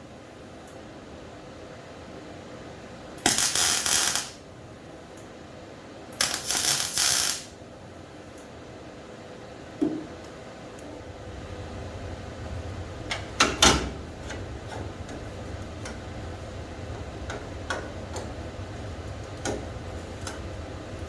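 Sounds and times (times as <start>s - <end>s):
low hum: 10.5s - 21.0s.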